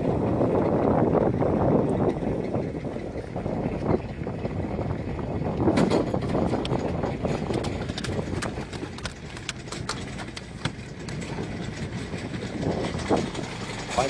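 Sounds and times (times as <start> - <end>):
fishing boat engine rumble: 0.0 - 14.0
sharp clicks and knocks: 5.6 - 14.0.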